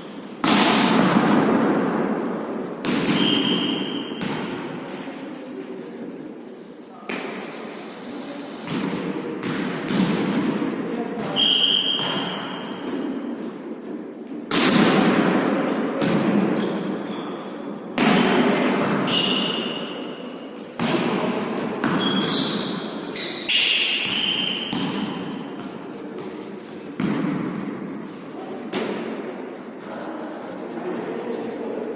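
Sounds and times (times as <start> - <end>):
ball thuds on indoor court: 0.4 - 5.1, 7.0 - 7.6, 8.6 - 13.1, 14.5 - 17.0, 20.8 - 28.1, 28.7 - 29.2.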